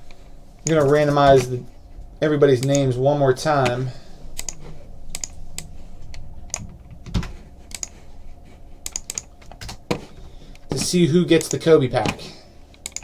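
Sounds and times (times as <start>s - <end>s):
computer keyboard typing: 4.4s - 5.7s, 6.5s - 8.0s, 8.8s - 9.9s, 10.7s - 13.0s.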